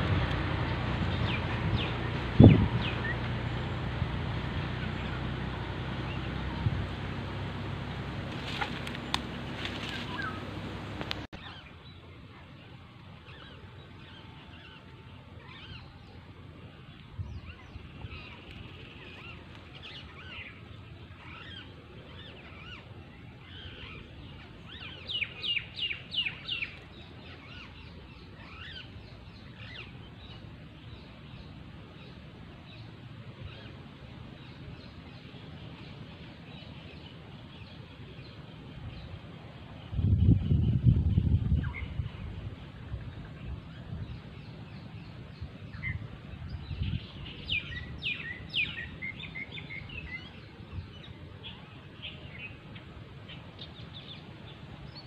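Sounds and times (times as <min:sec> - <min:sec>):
faint outdoor hiss: 0:00.0 - 0:55.0
loud falling bird calls: 0:04.4 - 0:11.3
bird chirps: 0:08.4 - 0:12.0, 0:43.1 - 0:52.6.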